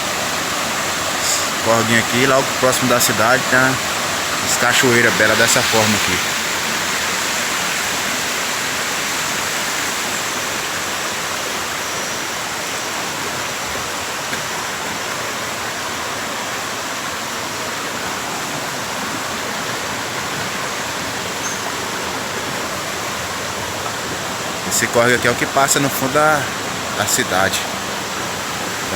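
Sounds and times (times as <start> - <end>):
water tumbling over waterfall: 0.0 - 28.9.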